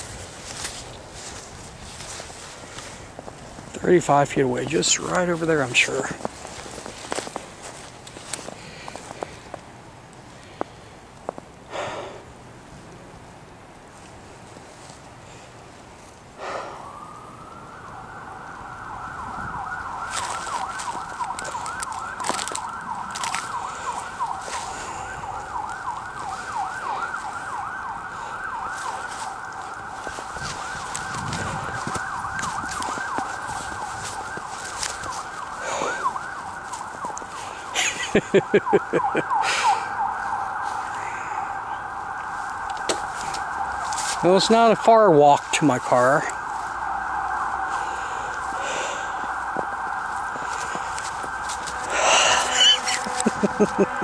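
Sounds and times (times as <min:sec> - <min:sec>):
emergency siren wailing: 0:00.0 - 0:10.6, 0:13.3 - 0:54.0
loud rapid pulses: 0:51.7 - 0:54.0.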